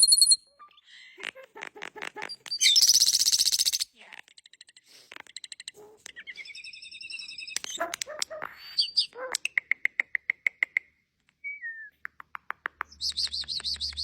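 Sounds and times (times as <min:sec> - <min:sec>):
starling singing: 0:02.2 - 0:03.9.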